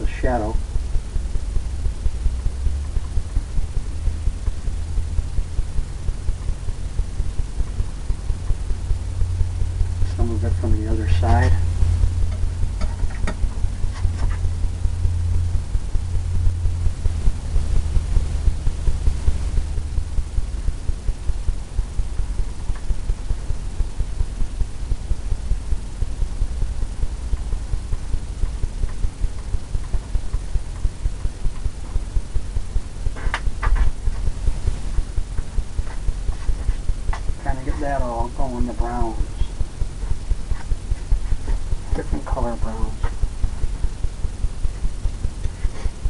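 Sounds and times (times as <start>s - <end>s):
low hum: 0.0s - 46.0s.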